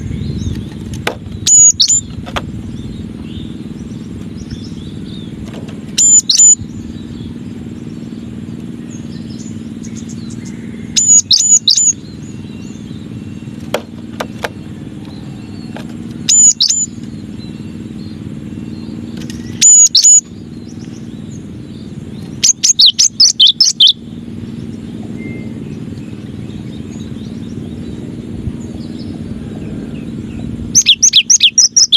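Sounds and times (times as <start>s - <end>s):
bird singing whistled notes: 0.0s - 5.4s, 6.0s - 13.7s, 14.5s - 31.9s
steady low hum: 0.0s - 31.9s.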